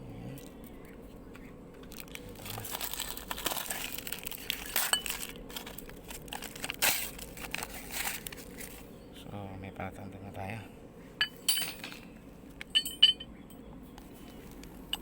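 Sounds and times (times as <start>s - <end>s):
metal tools clinking and rattling: 11.2s - 12.1s, 12.7s - 13.6s.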